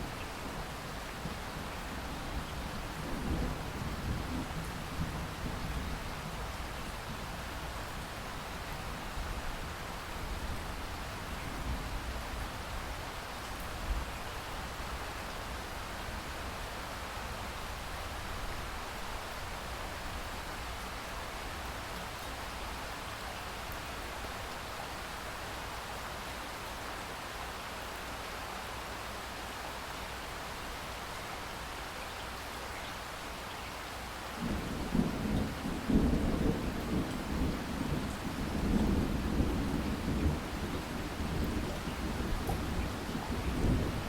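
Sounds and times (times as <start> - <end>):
rain falling: 0.0 - 44.0
thunder rumbling: 34.4 - 44.0.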